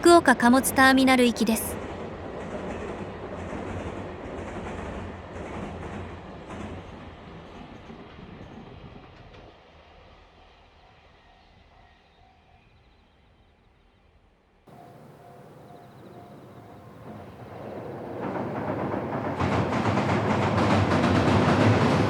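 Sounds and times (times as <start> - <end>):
freight train rumbling: 14.7 - 22.0
train wheels clicking on rail joints: 14.7 - 22.0.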